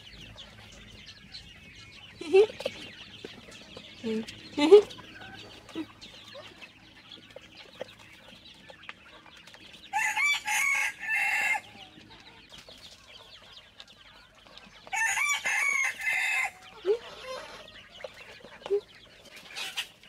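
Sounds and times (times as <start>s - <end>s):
chickens clucking softly: 0.0s - 20.0s
rooster crowing: 9.9s - 11.8s, 14.9s - 16.7s.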